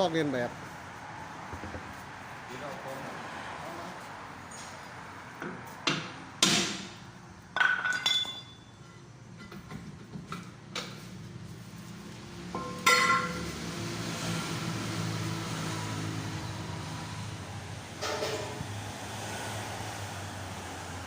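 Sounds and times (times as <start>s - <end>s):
metal tools clanking on metal: 7.6s - 9.7s, 12.6s - 13.5s, 18.0s - 18.6s.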